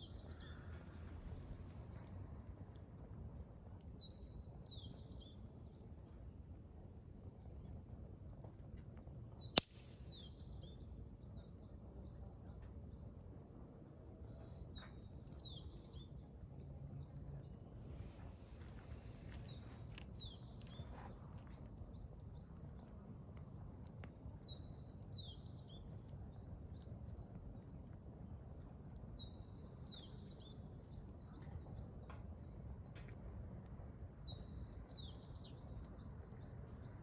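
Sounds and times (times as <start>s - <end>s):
songbird singing: 0.0s - 2.2s, 3.8s - 6.1s, 9.3s - 13.3s, 14.3s - 23.2s, 24.3s - 27.8s, 28.9s - 33.2s, 34.2s - 37.0s
low background rumble: 0.0s - 5.9s
firewood popping: 7.6s - 11.0s, 17.8s - 37.0s.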